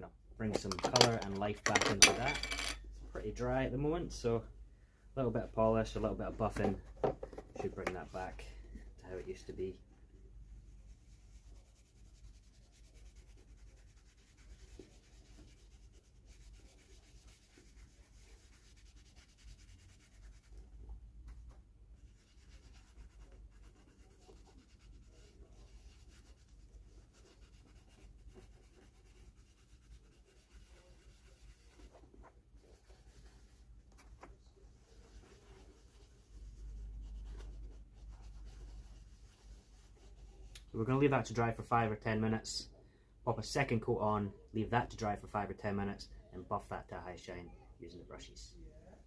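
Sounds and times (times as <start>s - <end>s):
cloth rubbing leather: 10.7s - 40.5s.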